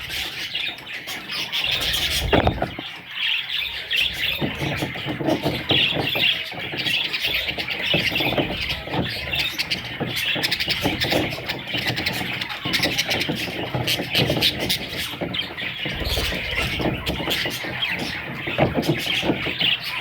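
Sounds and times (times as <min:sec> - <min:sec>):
budgerigars chattering: 0:00.0 - 0:20.0.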